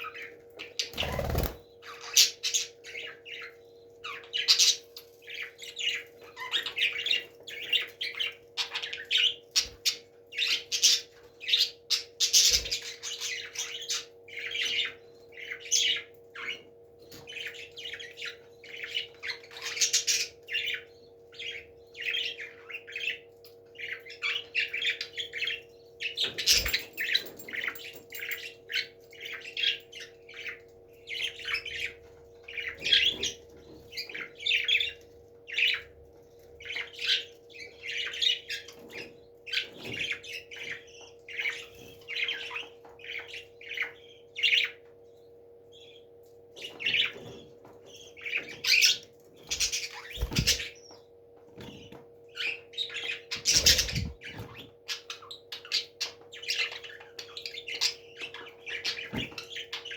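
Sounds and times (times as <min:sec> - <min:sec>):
parrots squawking and chirping: 0:04.0 - 0:15.0, 0:48.0 - 0:51.0, 0:51.6 - 0:59.9.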